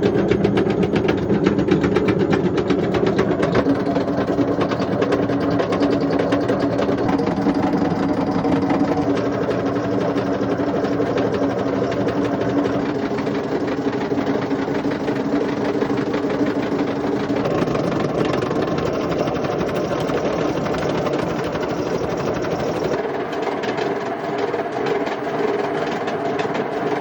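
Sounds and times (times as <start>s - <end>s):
washing machine drum grinding: 0.0s - 27.0s
steady hum: 2.3s - 25.4s.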